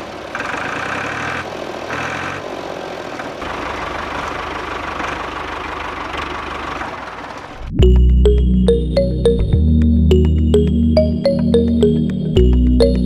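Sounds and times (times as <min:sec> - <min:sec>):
small motor rattling hum: 0:00.0 - 0:07.6.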